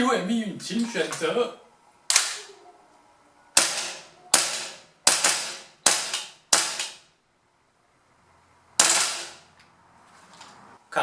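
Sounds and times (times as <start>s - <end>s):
airsoft rifle shots: 2.1s - 2.5s, 3.6s - 7.1s, 8.8s - 9.5s.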